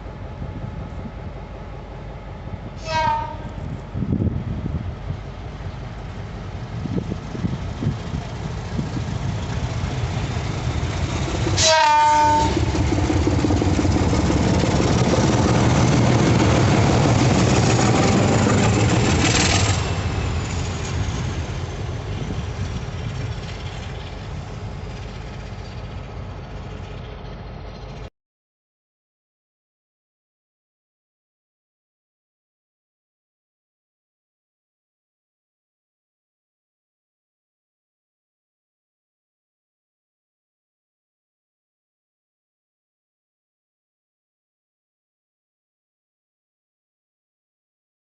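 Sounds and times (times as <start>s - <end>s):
diesel locomotive engine running: 0.0s - 28.1s
locomotive horn blast: 2.8s - 3.7s, 11.6s - 12.6s.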